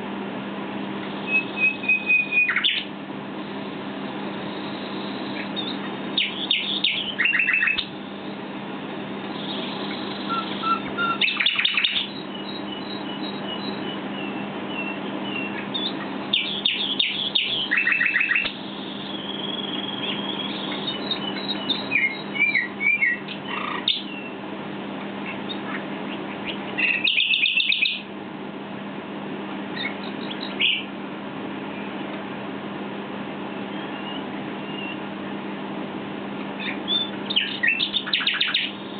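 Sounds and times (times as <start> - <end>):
steady low hum: 0.0 - 38.9
nightingale singing: 1.0 - 2.9, 3.5 - 8.4, 9.1 - 24.4, 25.2 - 28.1, 29.7 - 31.0, 33.6 - 35.1, 36.5 - 38.9.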